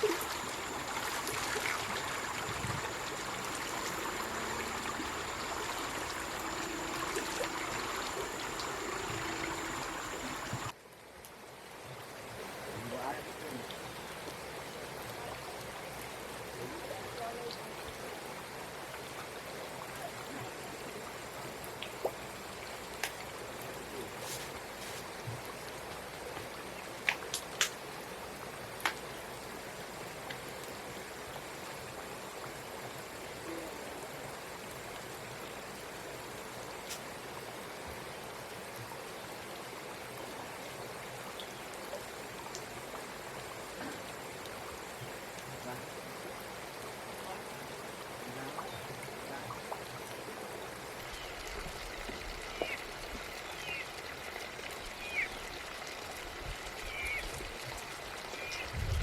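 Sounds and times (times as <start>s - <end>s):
water running: 0.0s - 10.7s.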